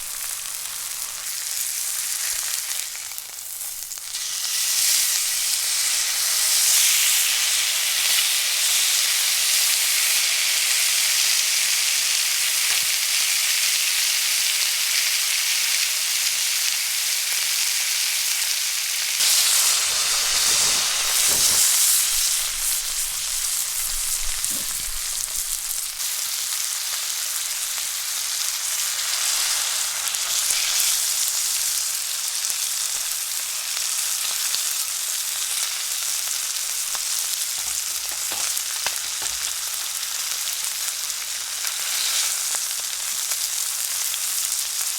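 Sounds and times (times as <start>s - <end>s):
food sizzling in a pan: 0.0s - 44.9s
faint knocks and shuffling: 20.9s - 26.0s.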